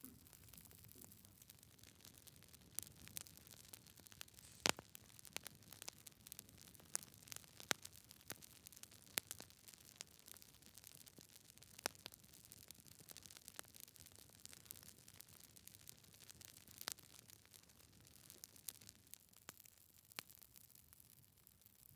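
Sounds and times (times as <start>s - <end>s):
wood fire crackling: 0.0s - 21.1s
faint hiss: 4.3s - 4.9s.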